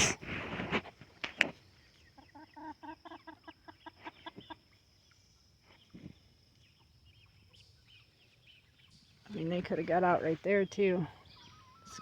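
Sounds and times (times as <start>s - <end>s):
chicken clucking: 2.0s - 4.8s.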